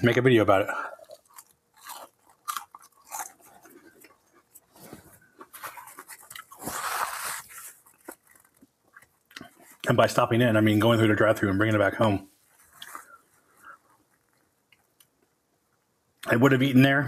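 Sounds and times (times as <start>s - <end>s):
person chewing crunchy food: 0.7s - 9.9s.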